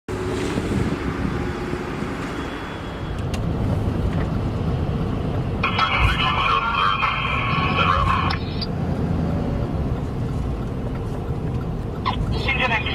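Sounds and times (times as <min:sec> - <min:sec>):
fire engine rumbling: 0:00.1 - 0:12.9.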